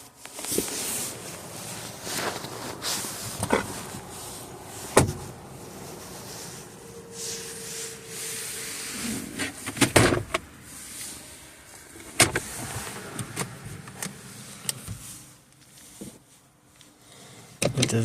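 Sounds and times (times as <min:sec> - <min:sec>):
car interior parts clicking: 0:00.2 - 0:08.2, 0:11.7 - 0:16.2.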